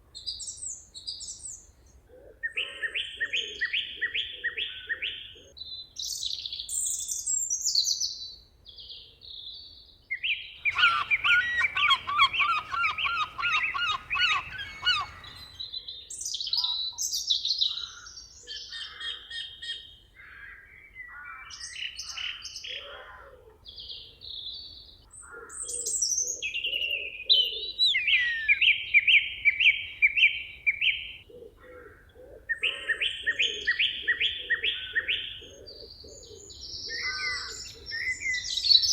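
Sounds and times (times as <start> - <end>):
songbirds singing: 10.3 - 23.0, 23.6 - 38.9
fast twittering bird song: 10.6 - 15.6.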